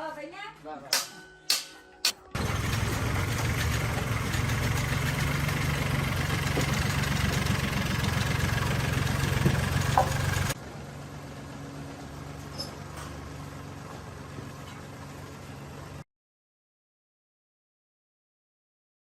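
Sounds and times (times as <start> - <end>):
engine idling: 2.3 - 16.0.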